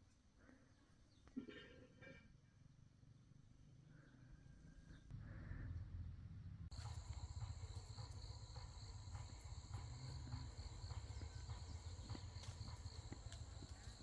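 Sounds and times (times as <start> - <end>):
high-pitched insect chorus: 6.7 - 14.0.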